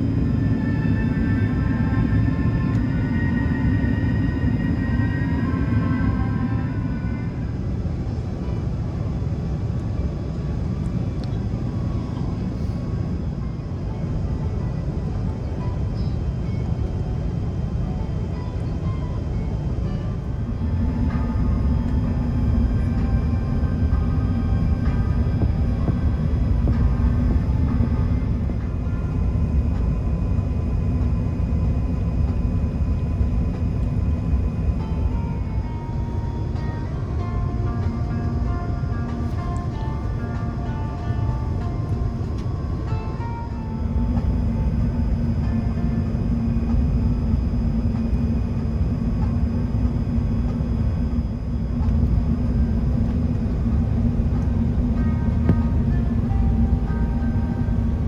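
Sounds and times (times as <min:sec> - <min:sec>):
airplane cabin rumble: 0:00.0 - 0:58.0
constant hum: 0:00.0 - 0:58.0
faint steady engine tones: 0:00.0 - 0:58.0.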